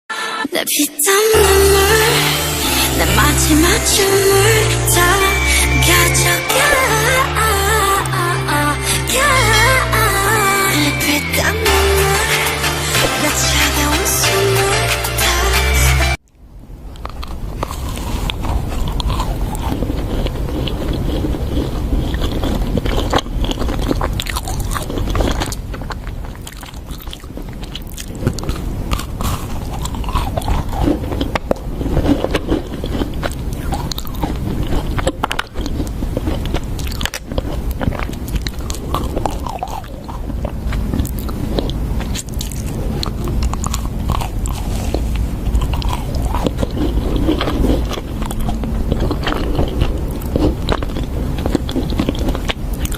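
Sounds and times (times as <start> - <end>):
crunchy food chewing: 16.8 - 52.9.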